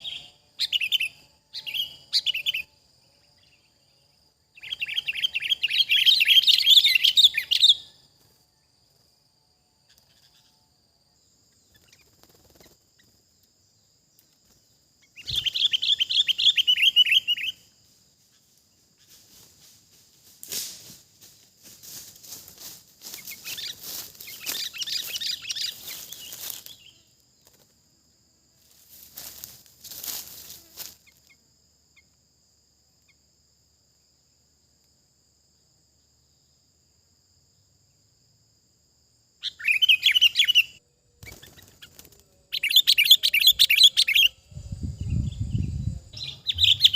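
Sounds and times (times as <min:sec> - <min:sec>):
birds chattering: 0:23.1 - 0:27.0, 0:45.1 - 0:46.9.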